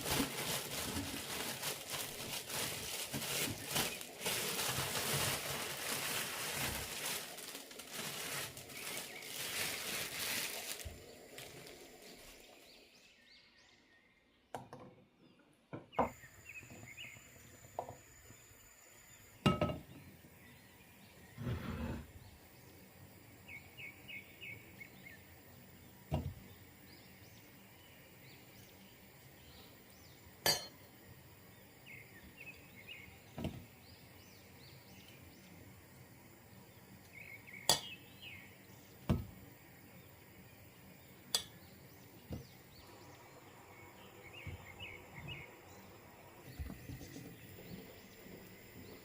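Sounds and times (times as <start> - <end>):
kitchenware clinking: 19.5 - 19.9, 30.4 - 30.8, 37.7 - 38.0.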